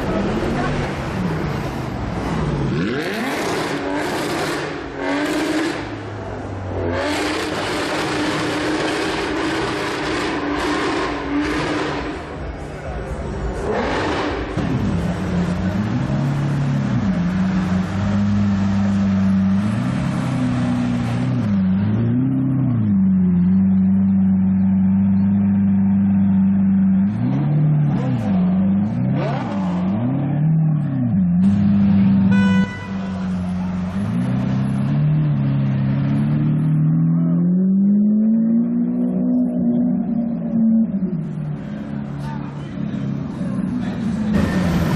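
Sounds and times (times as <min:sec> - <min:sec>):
sports car engine revving: 0:00.1 - 0:32.4.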